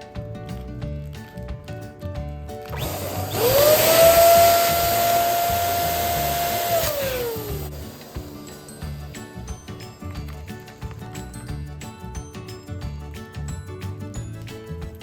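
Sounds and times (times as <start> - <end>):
electric pump motor whine: 2.7 - 8.7.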